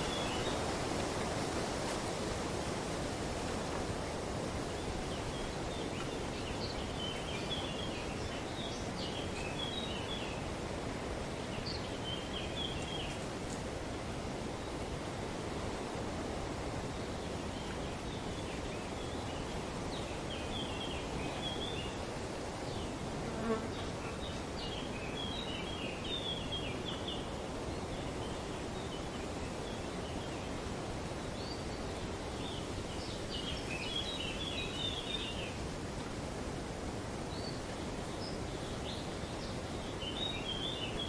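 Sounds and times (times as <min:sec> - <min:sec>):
wind rustling in trees: 0:00.0 - 0:41.0.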